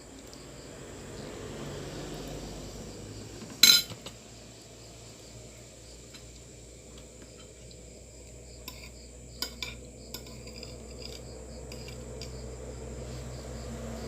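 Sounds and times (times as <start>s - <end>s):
steady low hum: 0.0s - 14.0s
cutlery clinking on plate: 3.6s - 4.1s, 8.6s - 12.3s.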